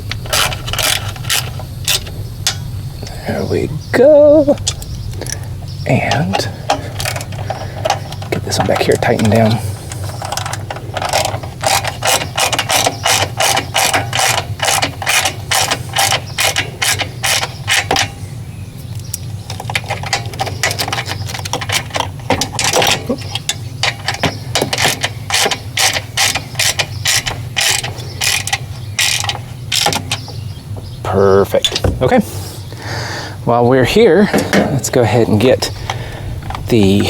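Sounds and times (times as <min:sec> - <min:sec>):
hand ratchet clicking: 0:00.0 - 0:02.7, 0:06.3 - 0:18.2, 0:19.0 - 0:30.4.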